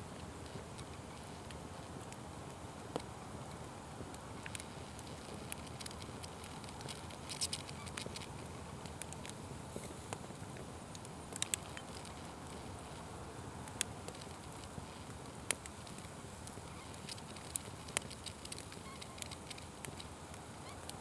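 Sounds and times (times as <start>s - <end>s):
open fire crackling and popping: 0.0s - 21.0s.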